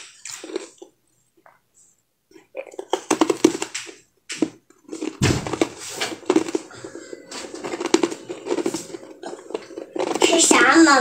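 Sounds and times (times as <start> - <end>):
chewing and mouth sounds: 0.0 - 1.7, 2.3 - 3.9, 6.1 - 10.6
heavy thump: 5.2 - 6.1.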